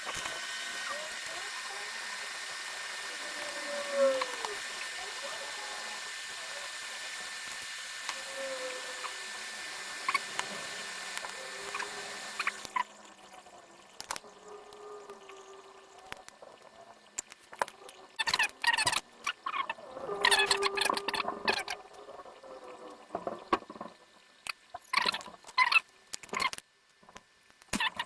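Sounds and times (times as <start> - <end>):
hot air station hissing: 0.0 - 13.1
small tools clicking on board: 17.1 - 21.8, 23.2 - 28.0.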